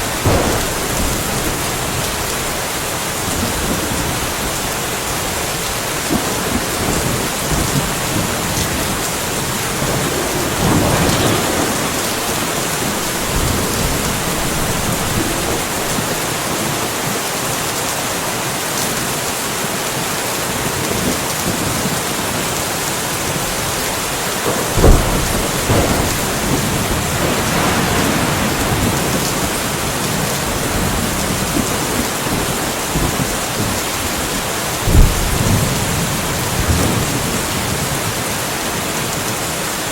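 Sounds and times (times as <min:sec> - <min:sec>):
sharp thunderclap: 0:00.0 - 0:16.7, 0:24.4 - 0:38.2
thunder rumbling: 0:00.0 - 0:17.1, 0:23.2 - 0:39.4
steady rain falling: 0:00.0 - 0:39.9.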